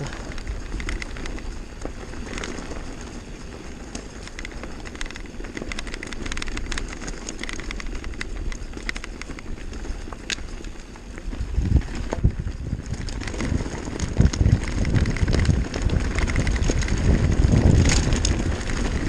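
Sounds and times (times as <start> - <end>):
bike clicking and rattling: 0.0 - 19.0
tyres rumbling on loose stones: 0.0 - 19.0
wind on microphone: 7.4 - 19.0.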